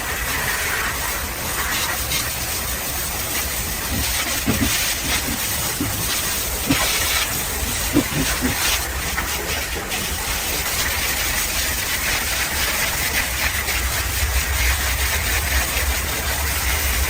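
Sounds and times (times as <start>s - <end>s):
pressure washer spraying water: 0.0s - 17.0s.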